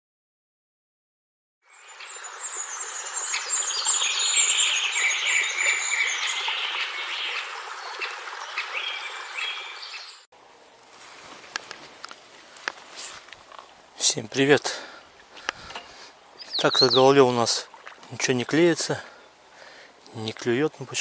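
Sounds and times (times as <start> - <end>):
insects chirring: 1.7 - 10.2
birds singing: 1.7 - 10.3, 16.4 - 17.2.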